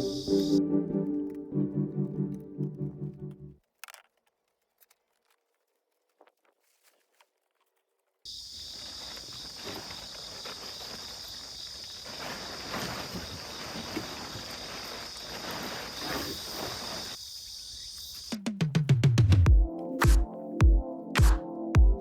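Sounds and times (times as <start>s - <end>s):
insects chirring: 0.0s - 0.6s, 8.3s - 18.8s
soft rustling crackles: 3.6s - 17.6s
electronic music with heavy beat: 19.2s - 22.0s.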